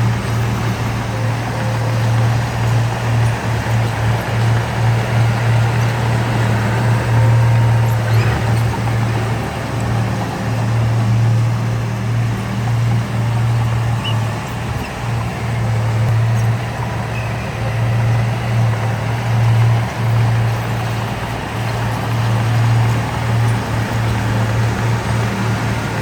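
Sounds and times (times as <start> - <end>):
heavy diesel engine droning: 0.0 - 26.0.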